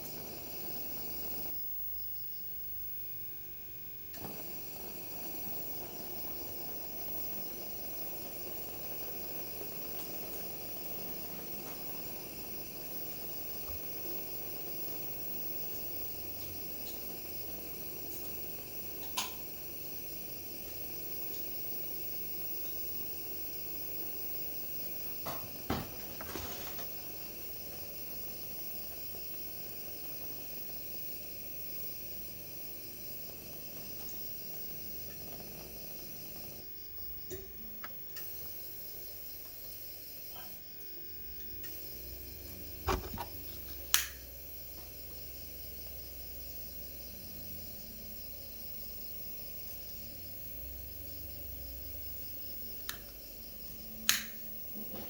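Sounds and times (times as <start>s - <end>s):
pressure lantern hissing: 0.0s - 55.0s
short knocks or clicks: 42.9s - 43.4s.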